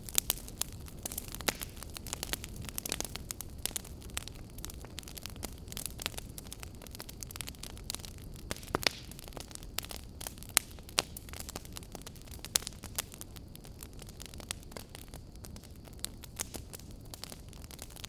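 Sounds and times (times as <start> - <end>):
fire crackles and pops: 0.0 - 18.0
low rush of flames: 0.0 - 18.0.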